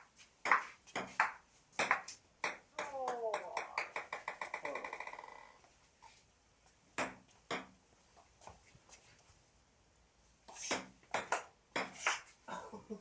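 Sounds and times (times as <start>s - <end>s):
table tennis ball hits: 0.4s - 5.2s, 10.5s - 12.3s.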